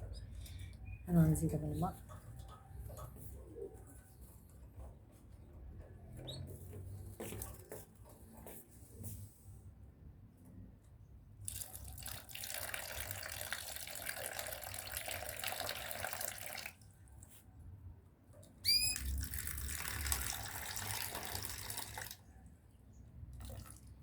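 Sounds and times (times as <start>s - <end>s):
water running into tub: 11.5s - 16.8s, 18.9s - 22.2s.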